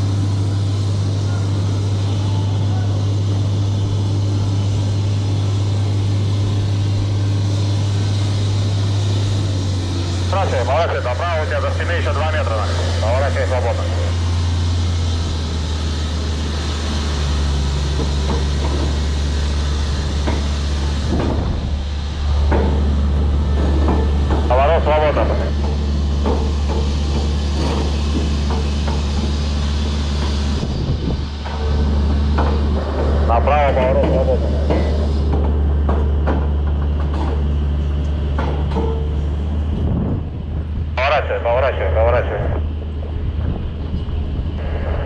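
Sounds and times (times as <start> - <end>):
crane engine droning: 0.0 - 45.0
wind noise: 21.0 - 22.4, 30.5 - 31.4, 39.6 - 40.9, 43.0 - 45.0
knocks and clatter: 22.4 - 22.8, 23.6 - 24.5, 25.6 - 29.4, 33.8 - 37.5, 38.3 - 39.2.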